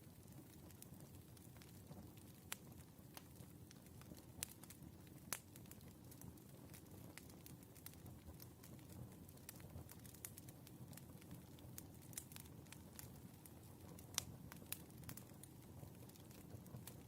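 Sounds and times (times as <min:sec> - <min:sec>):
firewood crackling: 0:00.0 - 0:17.0.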